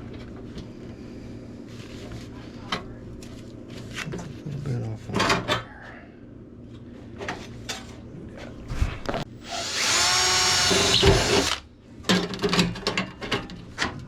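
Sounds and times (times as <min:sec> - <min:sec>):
power tool motor whine: 0:08.7 - 0:11.6.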